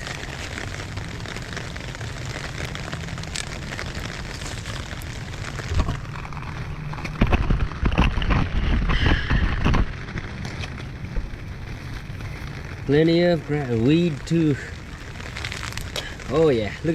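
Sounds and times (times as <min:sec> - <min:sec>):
rain falling: 0:00.0 - 0:16.9
wind buffeting microphone: 0:03.2 - 0:13.4.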